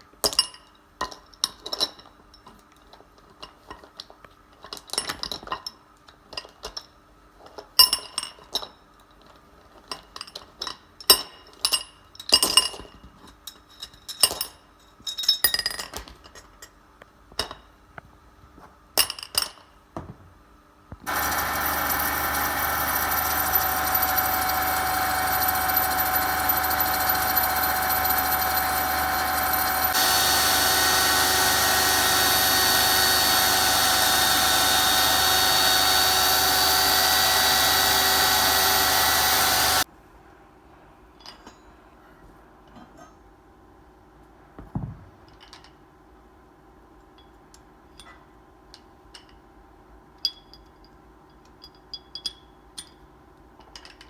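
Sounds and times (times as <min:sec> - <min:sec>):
power machine whining: 0:21.0 - 0:39.8
metal clinks and taps: 0:50.2 - 0:53.0.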